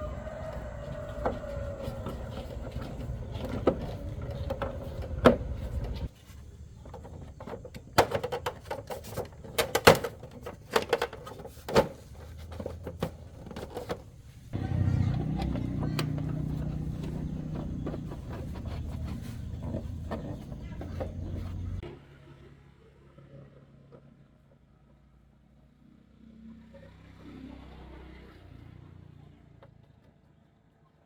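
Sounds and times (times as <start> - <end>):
motor rumbling: 0.0 - 6.1, 14.5 - 21.8.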